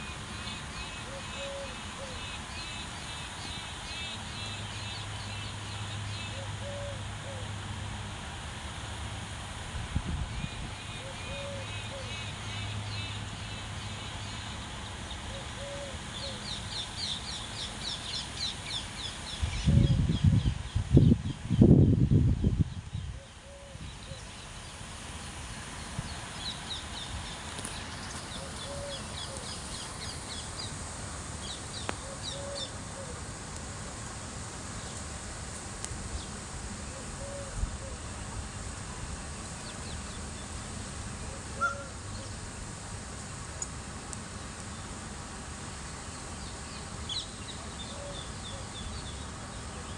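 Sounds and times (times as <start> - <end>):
steady outdoor hiss: 0.0 - 49.9
bird call: 0.4 - 5.5, 10.8 - 13.2, 28.1 - 30.5, 31.4 - 33.2, 41.3 - 42.4.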